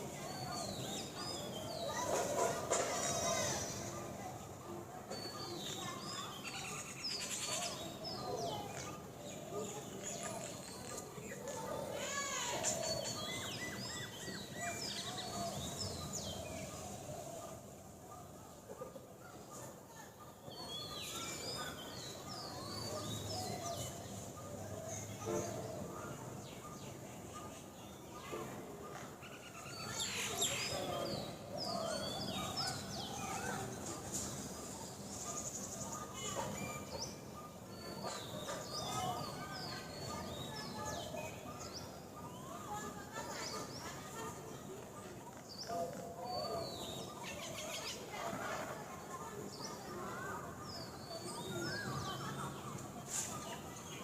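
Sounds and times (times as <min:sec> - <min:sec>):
outdoor background noise: 0:00.0 - 0:54.0.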